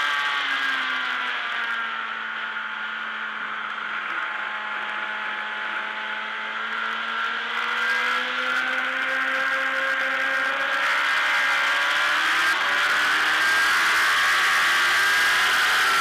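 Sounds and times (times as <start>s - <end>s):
motorcycle engine: 0.0s - 16.0s.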